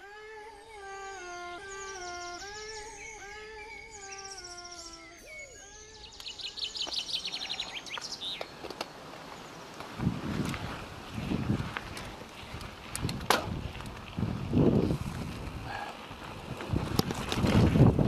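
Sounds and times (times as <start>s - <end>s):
bird pitched calls: 0.0s - 8.6s
birds trilling and chirping: 0.0s - 9.8s.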